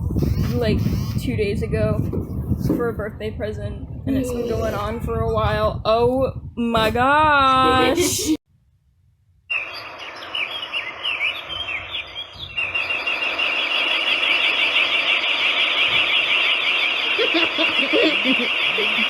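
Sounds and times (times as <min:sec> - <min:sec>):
birds chirping: 0:09.5 - 0:13.7.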